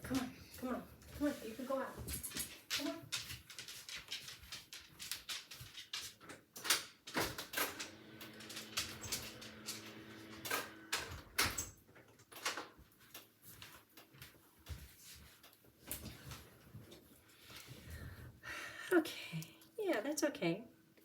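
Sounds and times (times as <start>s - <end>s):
door opening: 7.1s - 11.8s.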